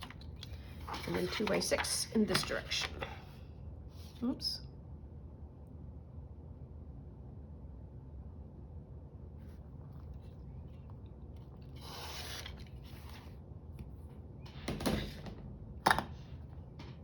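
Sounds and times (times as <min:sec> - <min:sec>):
low steady hum: 0:00.0 - 0:17.0
paper rustling and sliding: 0:00.6 - 0:02.0, 0:11.6 - 0:13.4.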